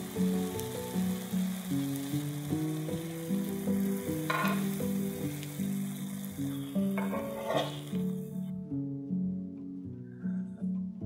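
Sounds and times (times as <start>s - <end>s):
cakes sizzling in oil: 0.0s - 8.4s
background music melody: 0.0s - 11.0s
spatula scraping pan: 4.3s - 4.8s, 6.8s - 8.2s.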